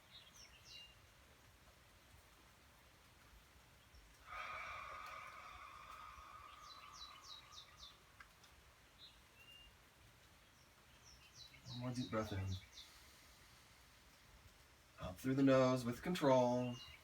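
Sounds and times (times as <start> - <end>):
small bird chirping: 4.9 - 9.8, 10.4 - 13.2, 16.6 - 17.0.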